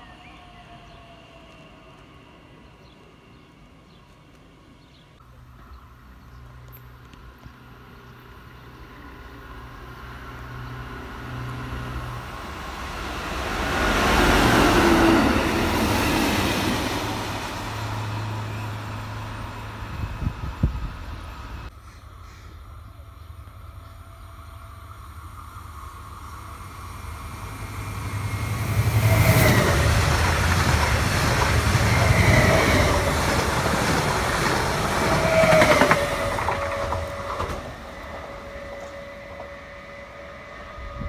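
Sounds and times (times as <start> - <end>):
wheels on rails: 25.2 - 40.4.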